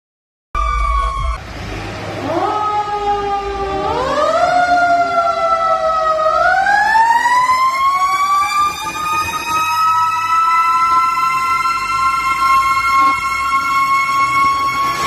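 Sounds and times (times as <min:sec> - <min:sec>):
fire truck siren wailing: 0:00.6 - 0:15.0.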